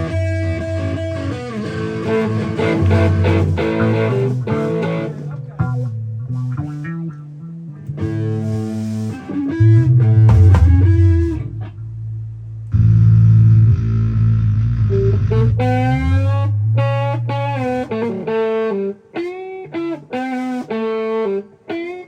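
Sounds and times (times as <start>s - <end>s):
amplified guitar riff: 0.0s - 22.0s.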